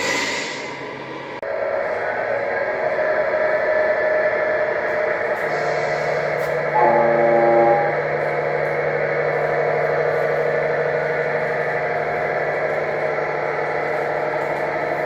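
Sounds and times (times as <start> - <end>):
diesel engine running: 4.7 - 15.0.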